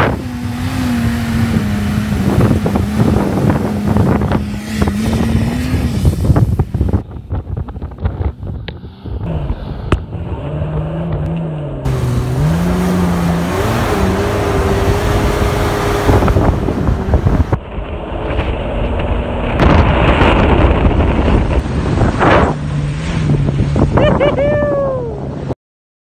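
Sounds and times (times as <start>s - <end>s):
car engine revving: 0.0s - 7.0s, 8.7s - 24.1s
wind noise on microphone: 0.0s - 25.6s
short falling cry: 24.0s - 25.3s.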